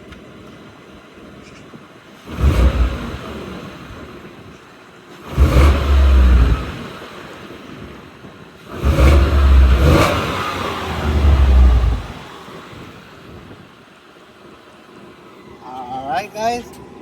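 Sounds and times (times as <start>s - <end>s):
engine revving from idle: 2.2s - 4.2s, 5.2s - 7.7s, 8.6s - 13.2s.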